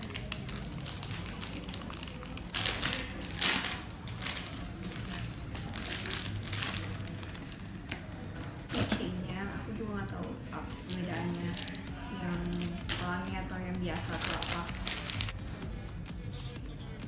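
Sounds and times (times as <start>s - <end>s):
plastic packaging crinkling: 0.0s - 9.1s, 10.6s - 13.3s, 13.9s - 15.4s.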